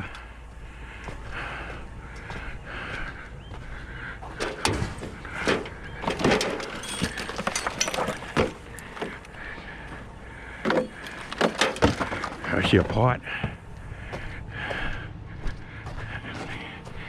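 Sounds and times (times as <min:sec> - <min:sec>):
scrap metal clanking: 0:04.4 - 0:09.5, 0:10.6 - 0:12.9.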